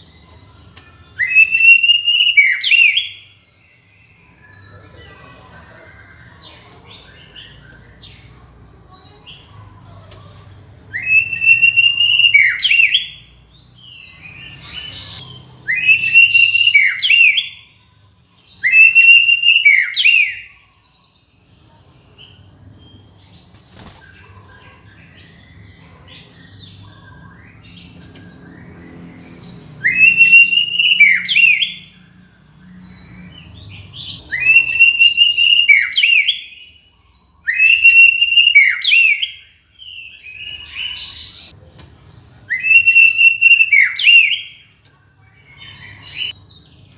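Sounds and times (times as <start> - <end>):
bird singing whistled phrases: 1.2 - 4.8, 10.9 - 17.8, 18.5 - 20.6, 29.8 - 32.0, 34.0 - 41.5, 42.5 - 44.7.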